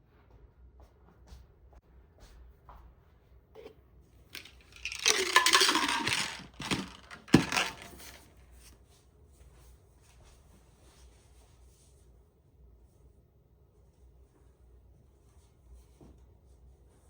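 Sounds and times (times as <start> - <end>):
rustling and clattering: 4.4 - 8.3.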